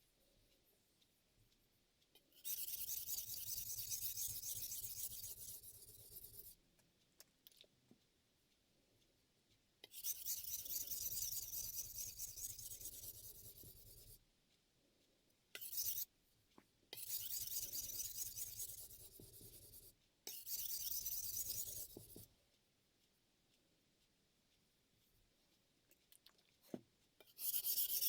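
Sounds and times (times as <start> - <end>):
knife scraping on whetstone: 10.0 - 12.9, 15.6 - 16.0, 17.0 - 18.8, 20.3 - 22.0, 27.3 - 28.0.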